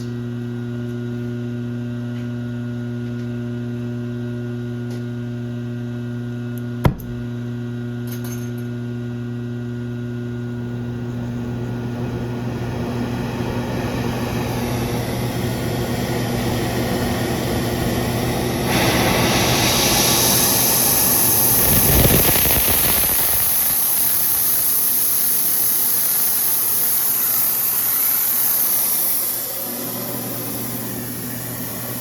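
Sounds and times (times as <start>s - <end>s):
electrical hum: 8.9s - 32.0s
rushing mechanical noise: 18.7s - 24.6s.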